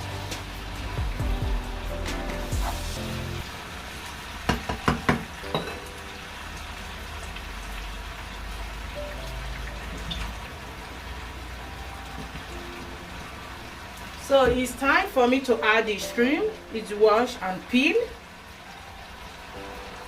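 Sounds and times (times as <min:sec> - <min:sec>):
sauce sizzling in a pot: 0:00.0 - 0:09.6.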